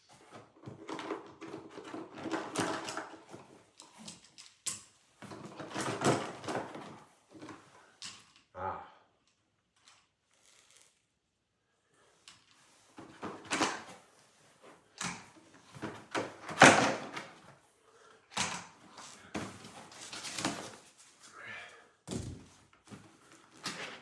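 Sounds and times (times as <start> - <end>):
plastic packaging rustling: 19.0 - 21.3.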